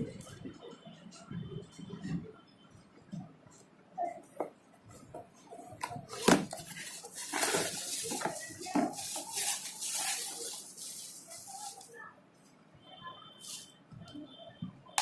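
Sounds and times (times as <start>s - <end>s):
crackly rustling: 4.4s - 12.5s.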